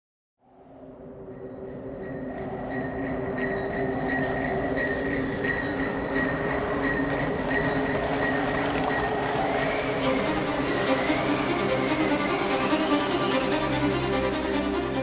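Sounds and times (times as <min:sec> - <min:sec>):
sleigh bells jingling: 0:02.1 - 0:10.9.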